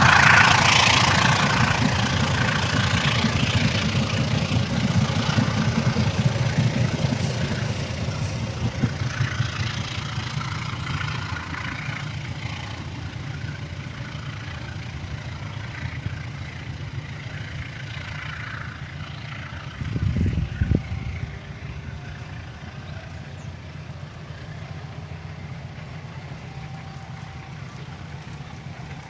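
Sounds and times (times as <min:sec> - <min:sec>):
train engine rumble: 0:00.0 - 0:29.0.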